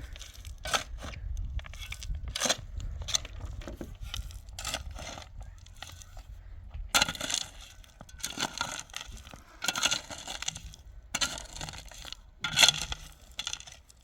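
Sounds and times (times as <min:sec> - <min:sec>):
shovel scraping gravel: 0:00.0 - 0:06.3, 0:07.0 - 0:14.0.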